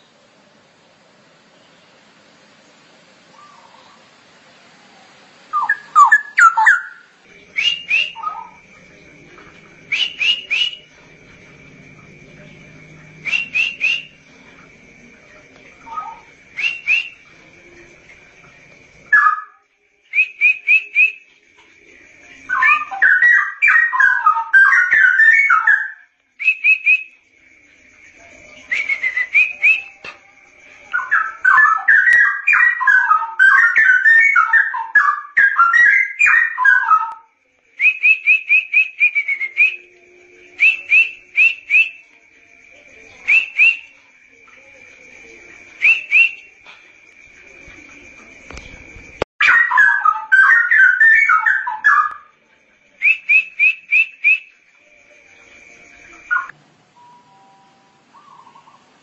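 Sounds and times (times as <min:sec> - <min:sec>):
bird warbling song: 0:03.3 - 0:04.1, 0:05.5 - 0:08.6, 0:15.8 - 0:17.2, 0:49.4 - 0:52.3, 0:55.9 - 0:57.2, 0:58.1 - 0:59.0.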